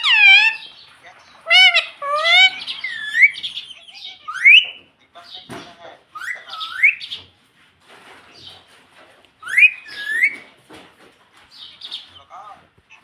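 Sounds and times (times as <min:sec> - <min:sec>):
parrot chatter and clicks: 0:00.0 - 0:00.7, 0:01.4 - 0:04.8
parrot whistled calls: 0:00.0 - 0:00.7, 0:01.4 - 0:04.8, 0:09.4 - 0:10.4.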